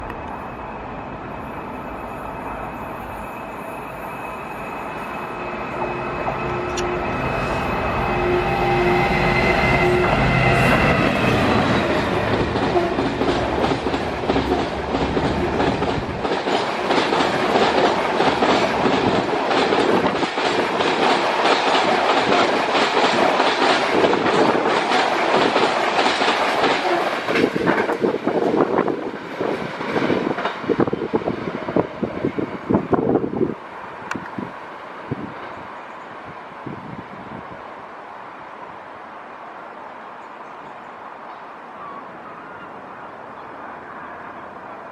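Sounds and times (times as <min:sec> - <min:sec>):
diesel locomotive engine: 0:00.0 - 0:44.9.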